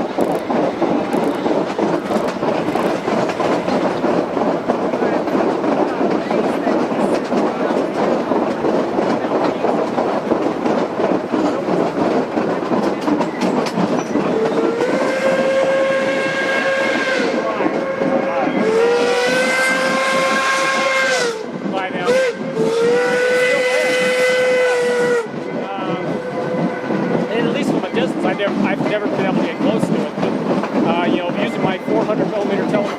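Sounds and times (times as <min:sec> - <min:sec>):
train running rumble: 0:00.0 - 0:32.9
steam locomotive whistle: 0:14.3 - 0:27.3.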